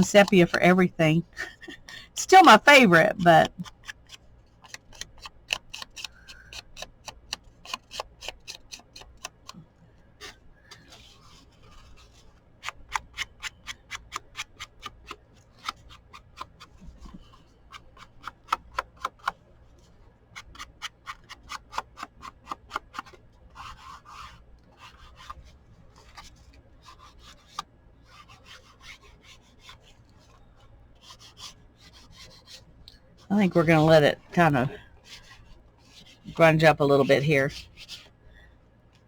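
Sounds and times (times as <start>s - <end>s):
scrubbing rubs on paper: 20.4s - 32.7s.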